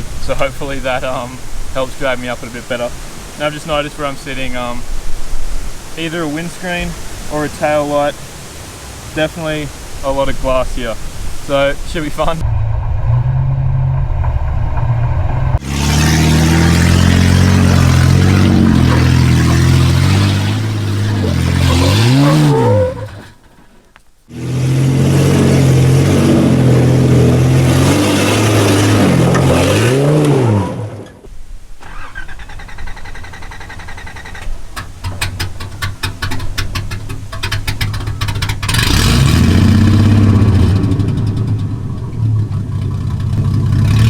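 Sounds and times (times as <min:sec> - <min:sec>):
petrol engine revving: 0:12.3 - 0:23.4, 0:24.3 - 0:44.0.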